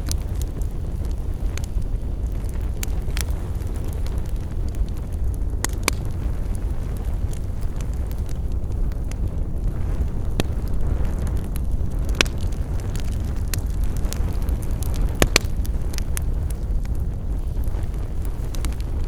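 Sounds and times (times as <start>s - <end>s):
campfire crackling: 0.0s - 19.0s.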